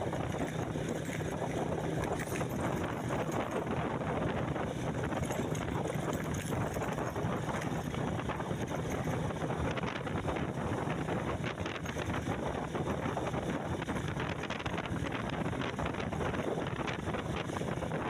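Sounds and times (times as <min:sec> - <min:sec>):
rattling and clatter: 0:00.0 - 0:12.5
vehicle engine hum: 0:00.0 - 0:18.0
wind buffeting microphone: 0:00.0 - 0:18.0.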